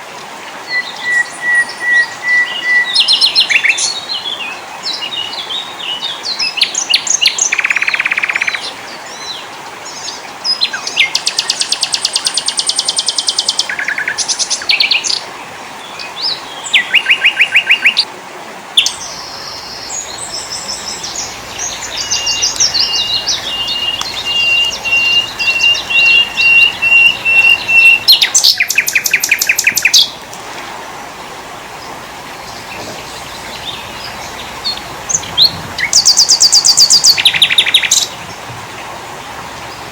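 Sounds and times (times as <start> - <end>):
songbirds singing: 0.0 - 18.1, 18.8 - 39.9
steady hiss: 18.0 - 39.9.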